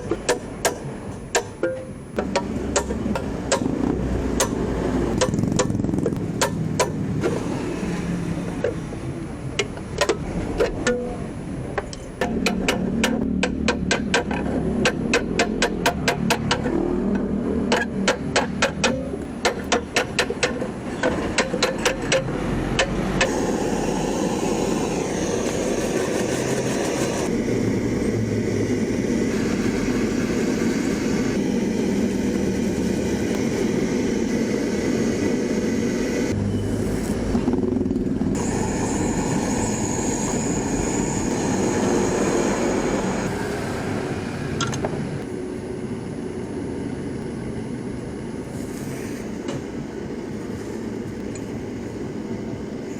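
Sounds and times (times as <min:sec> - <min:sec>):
hammer tapping on metal: 0:00.0 - 0:07.0, 0:11.8 - 0:23.3
steady rushing noise: 0:00.0 - 0:52.9.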